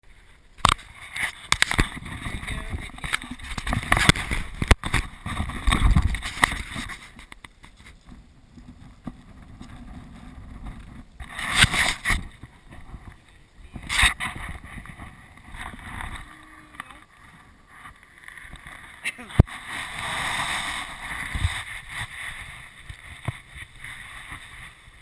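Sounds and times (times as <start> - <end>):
wind buffeting microphone: 1.8 - 7.2, 8.0 - 17.6.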